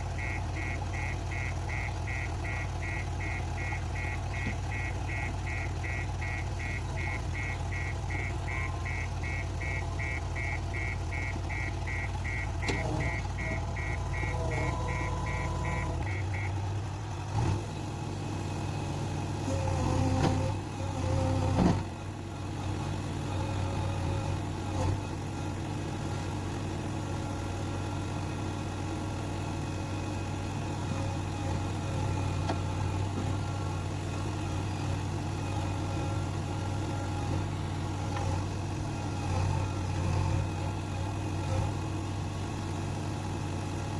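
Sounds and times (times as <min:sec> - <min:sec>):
diesel engine running: 0:00.0 - 0:43.9
beeping warning alarm: 0:00.2 - 0:16.6.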